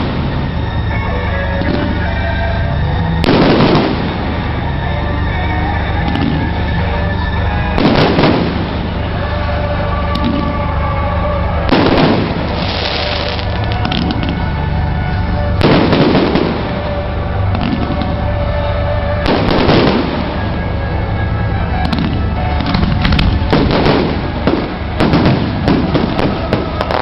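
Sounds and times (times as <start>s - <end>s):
fireworks bursting and crackling: 0.0s - 0.9s, 3.1s - 4.8s, 7.7s - 9.5s, 11.6s - 18.2s, 19.2s - 20.8s, 21.7s - 27.0s
music: 0.0s - 27.0s.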